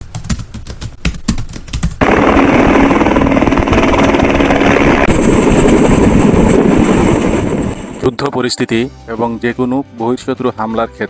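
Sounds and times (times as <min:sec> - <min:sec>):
rapid machine-gun-like shots: 0:01.8 - 0:06.4.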